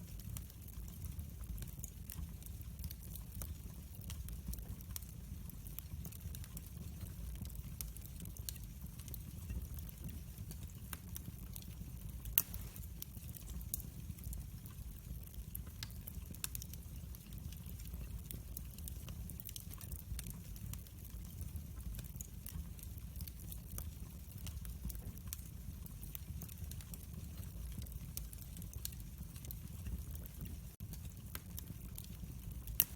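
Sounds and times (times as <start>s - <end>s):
fire rumbling and crackling: 0.0s - 32.9s
sharp fire pop: 12.4s - 12.8s.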